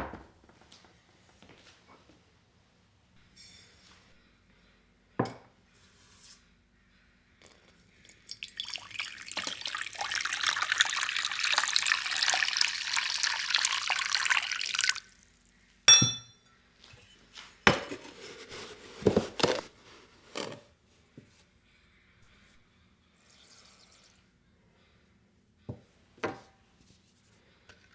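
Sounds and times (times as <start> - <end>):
kitchen tap running into sink: 8.0 - 15.3
sharp ringing clink: 15.9 - 16.6.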